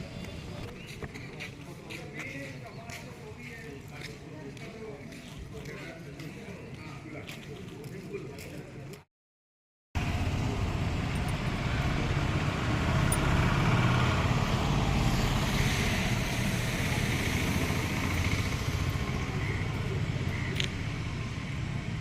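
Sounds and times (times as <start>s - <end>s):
vehicle engine rumbling: 10.0s - 22.0s.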